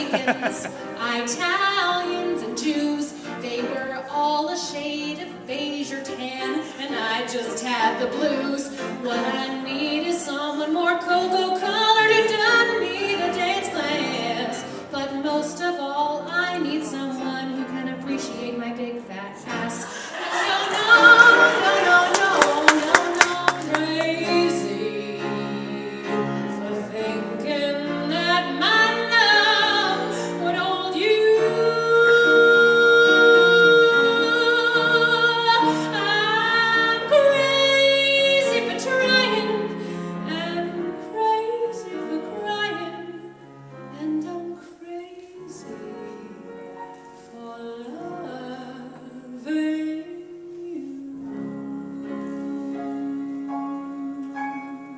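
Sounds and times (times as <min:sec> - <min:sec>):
woman singing: 0:00.0 - 0:46.6, 0:47.2 - 0:54.9
piano accompaniment: 0:00.0 - 0:54.9.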